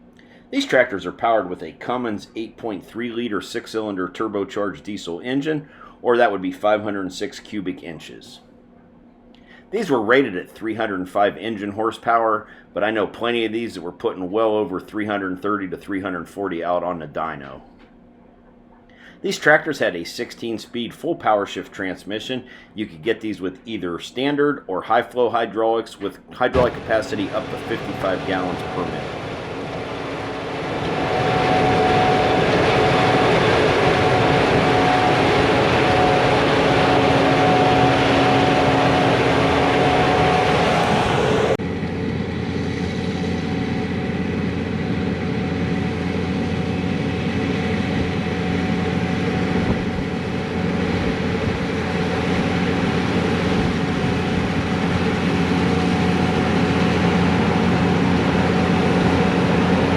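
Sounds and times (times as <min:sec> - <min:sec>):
low engine drone: 0:00.0 - 0:11.7, 0:26.0 - 0:59.9
diesel engines running: 0:26.4 - 0:59.9.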